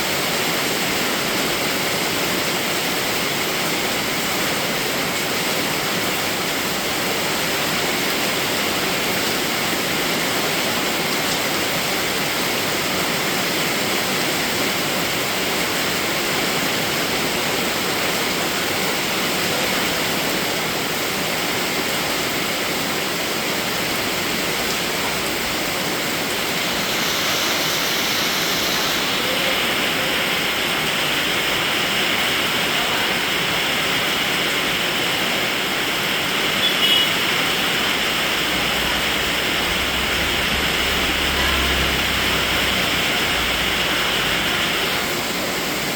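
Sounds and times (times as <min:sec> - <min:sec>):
steady rain: 0:00.0 - 0:45.9.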